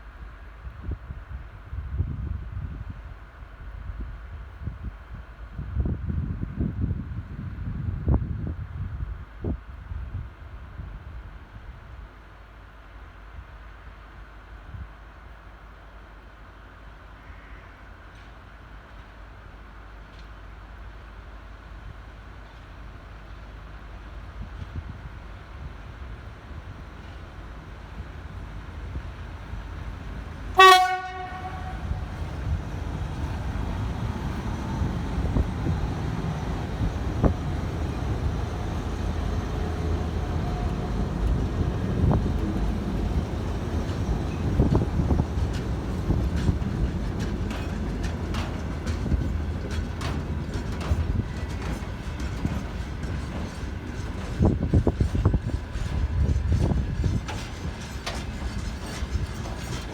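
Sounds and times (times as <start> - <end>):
freight train rumble: 0.0 - 59.9
locomotive horn blast: 29.1 - 34.1.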